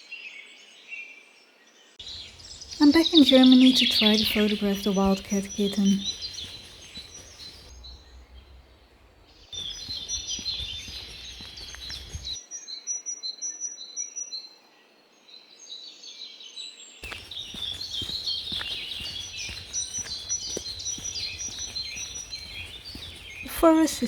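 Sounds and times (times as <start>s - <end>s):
songbirds chirping and trilling: 0.2s - 24.0s
low background rumble: 6.0s - 12.4s.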